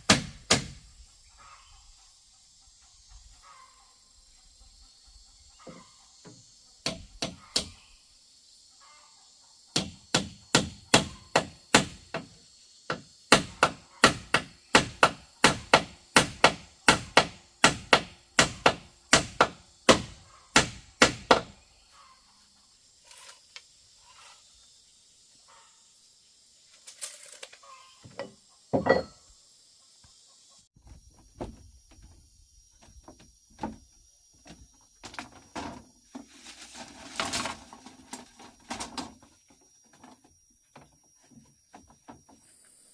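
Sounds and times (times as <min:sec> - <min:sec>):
tool strikes on bamboo: 0:00.0 - 0:00.9, 0:06.3 - 0:07.8, 0:09.7 - 0:21.6.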